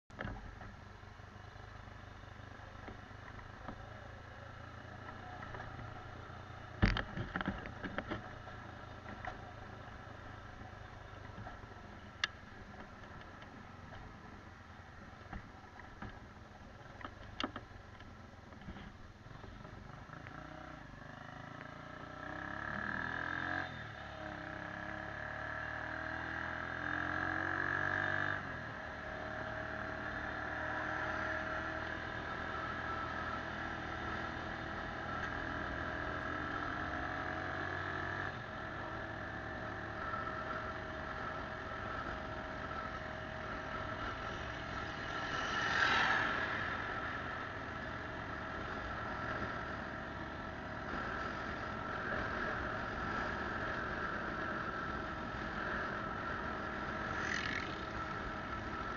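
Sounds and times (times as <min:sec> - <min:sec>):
motorcycle engine running: 0:00.1 - 0:58.9.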